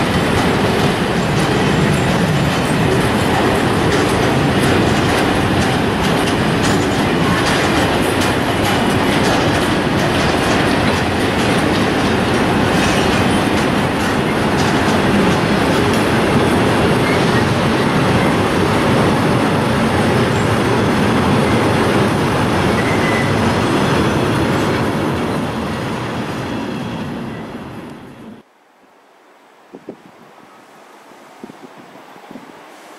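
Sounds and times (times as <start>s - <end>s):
wheels clicking over rail joints: 0.0s - 25.4s
freight train rumbling past: 0.0s - 28.4s.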